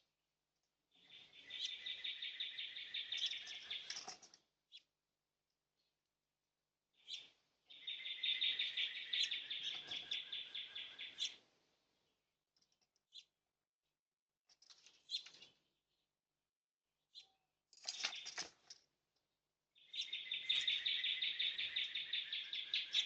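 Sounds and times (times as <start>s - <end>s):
small birds chirping: 0.9s - 4.9s, 6.9s - 13.4s, 14.5s - 16.0s, 17.0s - 18.9s, 19.8s - 23.0s.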